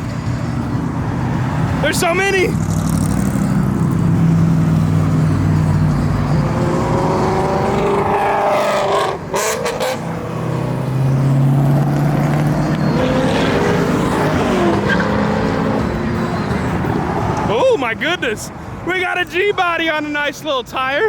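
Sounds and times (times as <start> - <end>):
car accelerating: 0.0 - 17.6
cars driving past: 0.0 - 19.0.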